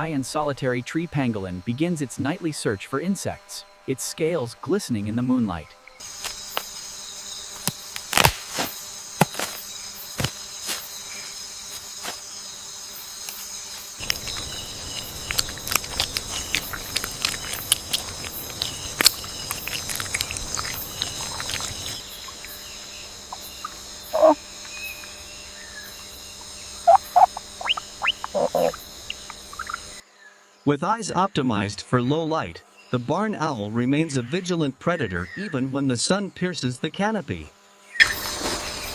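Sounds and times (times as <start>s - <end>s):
high-pitched insect chorus trilling: 0.0s - 31.7s
sharp clicks and snaps: 14.0s - 22.0s
short chirping calls: 14.0s - 30.0s.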